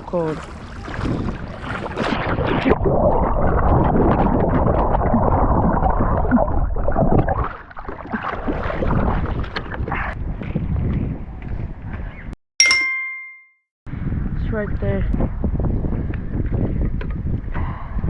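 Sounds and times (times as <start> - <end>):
water splashing from wading: 0.0 - 9.9.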